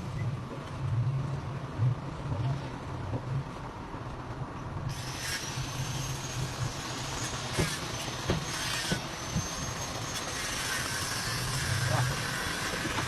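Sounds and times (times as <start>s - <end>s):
high-pitched squeal: 4.9s - 13.0s.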